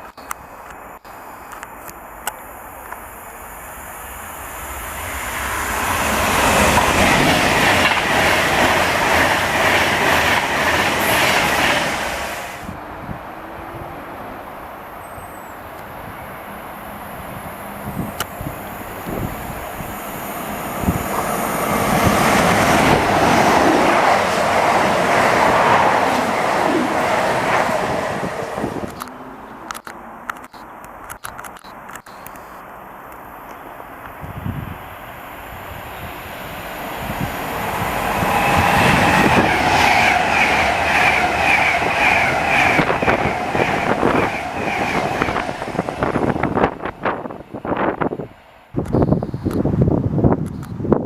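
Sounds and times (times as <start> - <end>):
train wheels on rails: 0.0 - 13.7, 14.4 - 51.0
wheels clicking over rail joints: 6.1 - 12.0
wheels squealing: 35.7 - 47.3.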